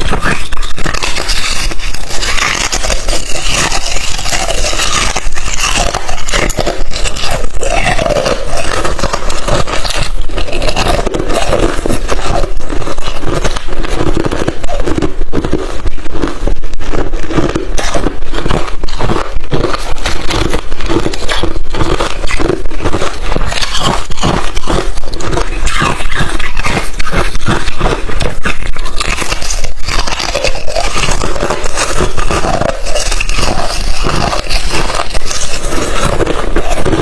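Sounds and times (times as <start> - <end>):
ice chips being chewed: 0.0 - 37.0.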